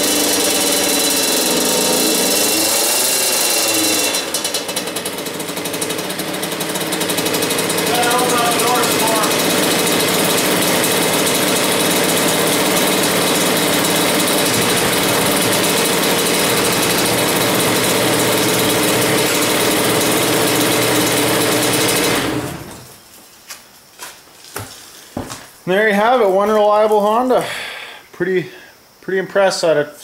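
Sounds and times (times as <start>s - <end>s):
two-stroke motorcycle engine running: 0.0s - 22.9s.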